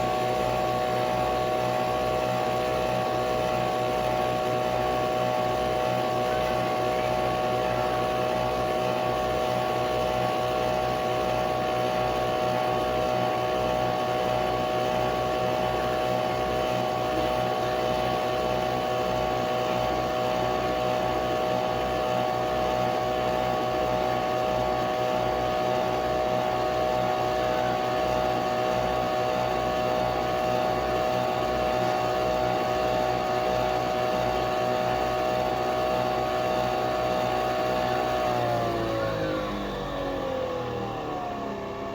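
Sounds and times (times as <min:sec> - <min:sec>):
coffee machine whine: 0:00.0 - 0:41.9.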